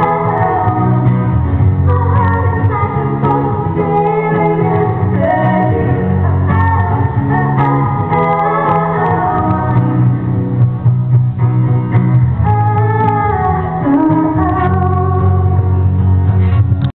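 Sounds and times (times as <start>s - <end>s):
female duo singing pop song: 0.0s - 10.2s, 12.4s - 15.8s
guitar: 0.0s - 16.9s.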